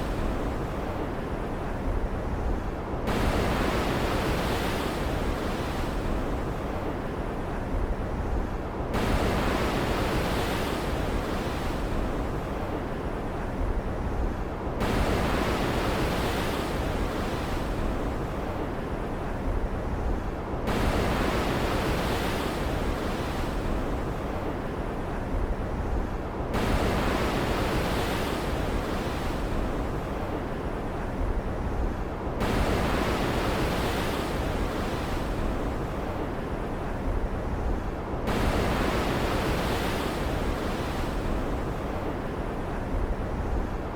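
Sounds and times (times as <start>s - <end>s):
surf hissing with surging waves: 9.0s - 43.9s.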